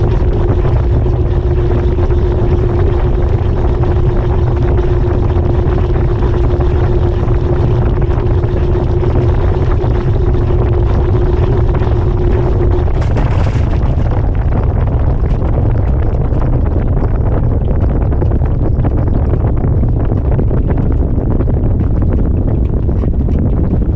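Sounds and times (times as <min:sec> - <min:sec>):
steady hum: 0:00.0 - 0:23.9
washing machine rumbling: 0:00.0 - 0:23.9.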